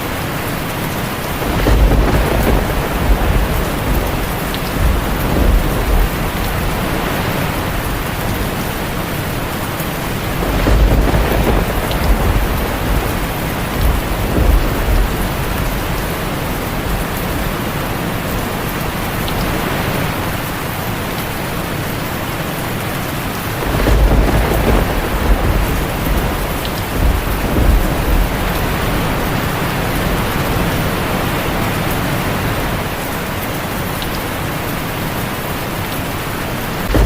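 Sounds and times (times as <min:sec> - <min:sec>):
heavy rain on a tin roof: 0:00.0 - 0:37.0
thunder rumbling: 0:00.1 - 0:20.4, 0:23.4 - 0:33.0, 0:36.7 - 0:37.0.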